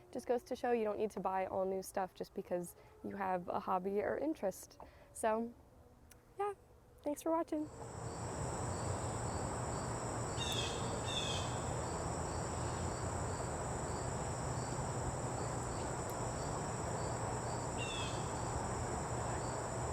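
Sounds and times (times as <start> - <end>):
insect high trill: 7.7 - 19.9
insect pulsing trill: 7.7 - 19.9
low background rumble: 7.7 - 19.9
bird falling call: 8.9 - 18.7.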